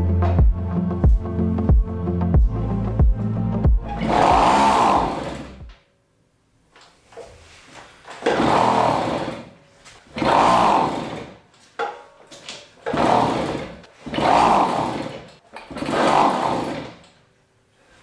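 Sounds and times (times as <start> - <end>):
moped engine revving: 3.7 - 5.7, 8.2 - 9.5, 10.1 - 11.4, 12.8 - 17.0.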